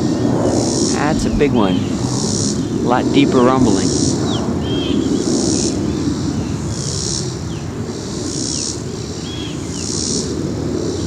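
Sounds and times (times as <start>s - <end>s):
jet airliner rumbling: 0.0s - 6.7s.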